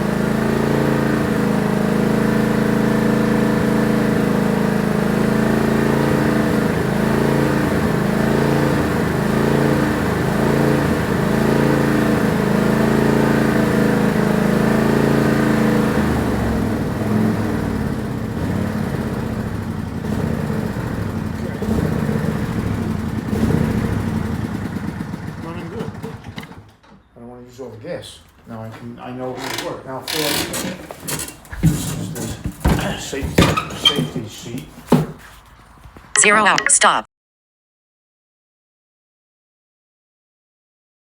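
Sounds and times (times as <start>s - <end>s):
tractor engine running: 0.0s - 26.8s.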